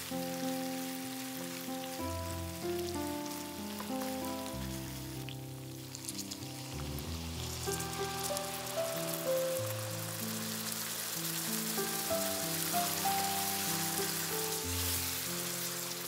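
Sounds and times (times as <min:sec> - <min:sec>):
background instrumental music: 0:00.0 - 0:16.0
chicken wings sizzling in a pan: 0:00.0 - 0:16.0
liquid poured into a hot pan: 0:01.0 - 0:16.0.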